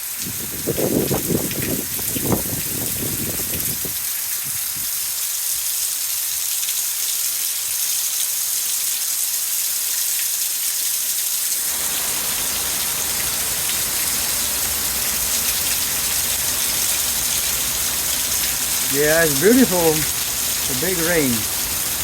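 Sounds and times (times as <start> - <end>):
heavy rain pouring: 0.1 - 4.7, 11.6 - 22.0.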